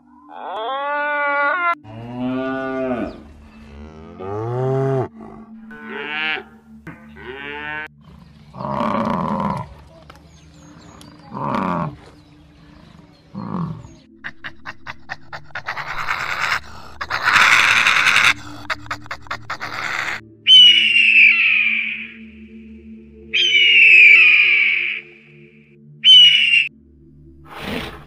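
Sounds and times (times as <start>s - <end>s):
cattle mooing: 0.3s - 9.8s
bison grunting: 1.8s - 9.9s, 10.6s - 20.2s.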